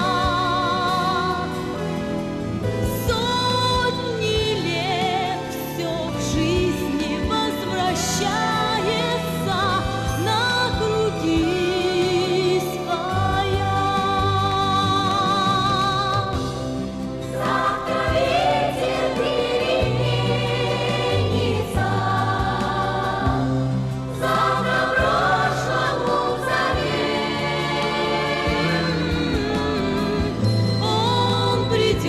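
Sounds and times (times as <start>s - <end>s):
steady bass accompaniment: 0.0s - 32.0s
choir singing held notes: 17.2s - 32.0s.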